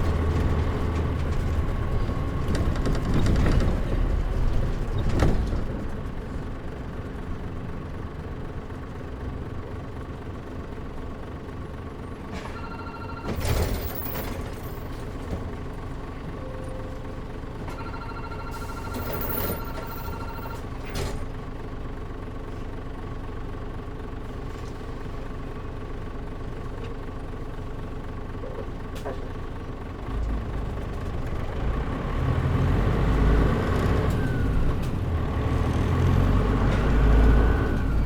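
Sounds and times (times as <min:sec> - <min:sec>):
bus diesel engine: 0:00.0 - 0:38.0
short electronic beeping: 0:17.8 - 0:20.7.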